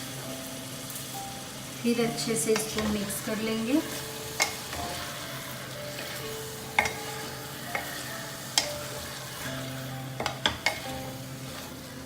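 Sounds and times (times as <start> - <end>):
light sizzle: 0.0 - 12.0
spoon stirring vegetables in a pot: 2.4 - 12.0.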